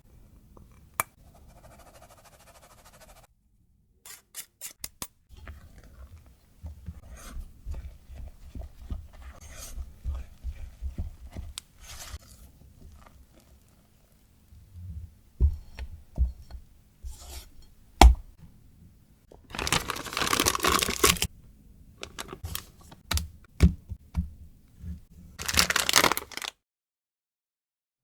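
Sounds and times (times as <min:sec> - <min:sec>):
scraping and rustling: 0:05.4 - 0:13.7, 0:19.5 - 0:21.3, 0:22.0 - 0:23.1, 0:24.8 - 0:26.5.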